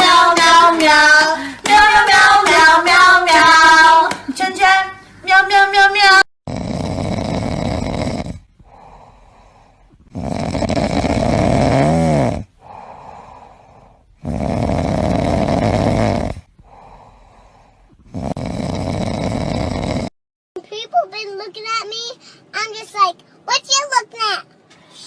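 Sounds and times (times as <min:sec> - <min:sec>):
squeaky snore sound: 0:06.5 - 0:08.5, 0:10.0 - 0:12.5, 0:14.2 - 0:16.5, 0:18.1 - 0:20.1
loud snoring: 0:06.5 - 0:20.2.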